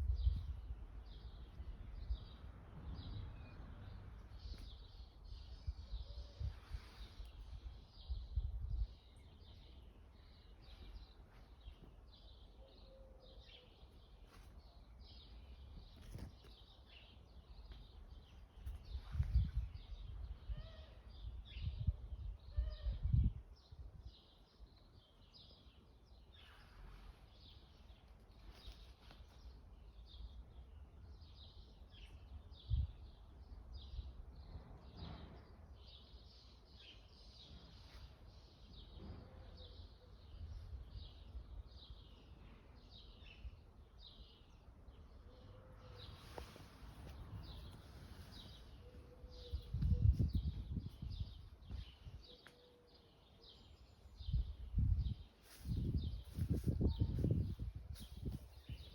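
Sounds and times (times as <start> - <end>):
faint background noise: 0.0 - 58.9
birds chirping: 36.3 - 58.9.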